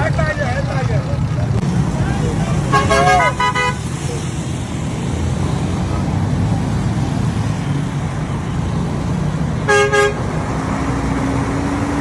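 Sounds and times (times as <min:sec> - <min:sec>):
low rumble of traffic: 0:00.0 - 0:12.0
vehicle horn toots: 0:02.7 - 0:03.9, 0:09.7 - 0:10.2.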